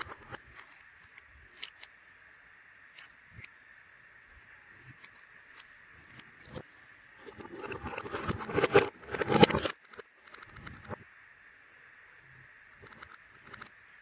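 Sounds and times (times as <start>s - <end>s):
plastic clicks: 0.2s - 1.9s.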